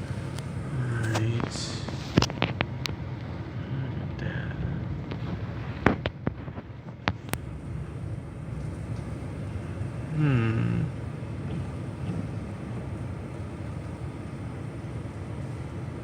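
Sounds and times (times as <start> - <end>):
heavy rain: 0.0 - 16.0
wind: 0.0 - 16.0.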